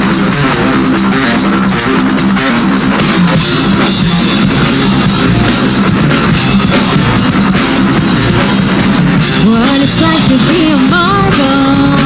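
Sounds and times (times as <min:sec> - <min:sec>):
drum kit: 0:00.0 - 0:12.0
electric guitars: 0:00.0 - 0:12.0.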